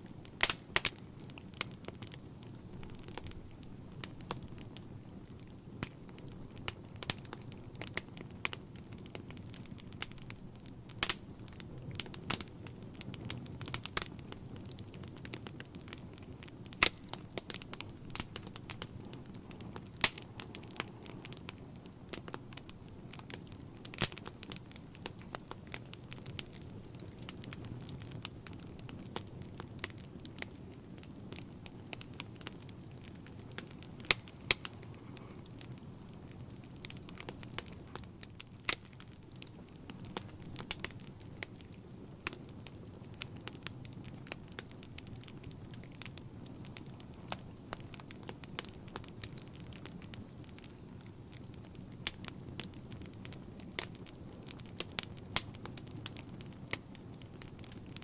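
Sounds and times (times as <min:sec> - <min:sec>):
fire crackling and popping: 0:00.0 - 0:58.0
low rumble of flames: 0:00.0 - 0:58.0.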